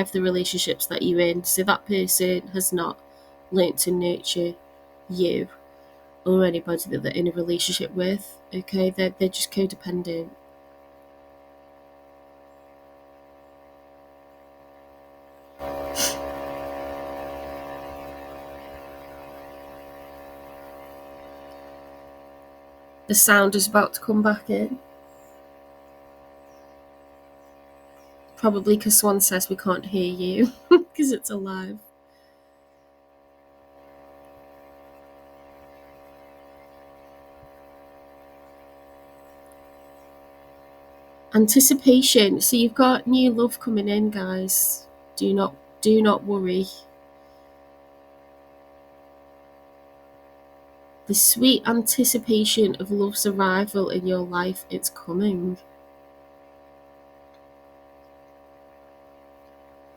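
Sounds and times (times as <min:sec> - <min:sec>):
electrical mains hum: 0:00.0 - 0:59.9
hiss: 0:15.9 - 0:16.4.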